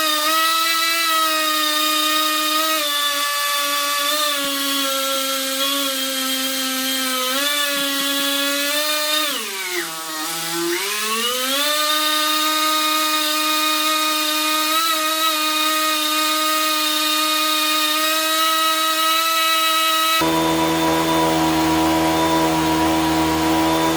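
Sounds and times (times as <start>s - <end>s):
small electric motor whining: 4.2s - 13.2s, 19.6s - 23.9s.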